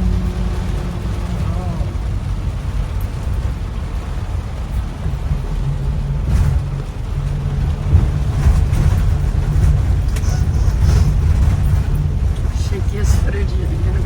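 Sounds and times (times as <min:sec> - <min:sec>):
minibus engine hum: 0:00.0 - 0:14.0
road rumble: 0:00.0 - 0:14.0.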